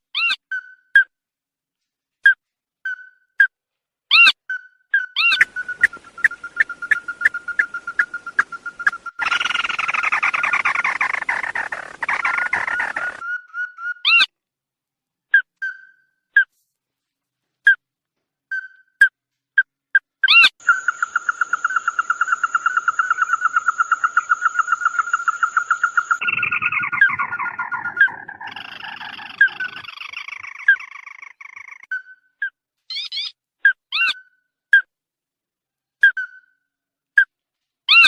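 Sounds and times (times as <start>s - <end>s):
bird trilling: 5.0s - 14.3s, 20.2s - 32.1s.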